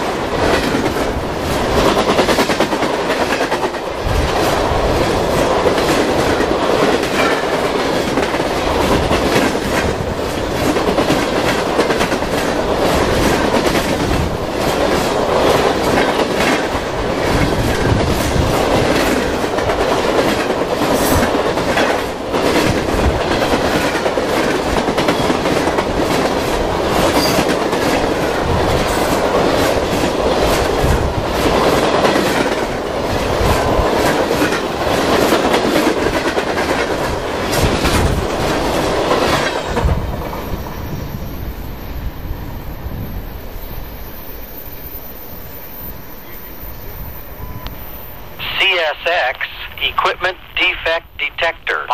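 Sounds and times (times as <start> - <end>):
freight train rolling past: 0.0 - 51.9.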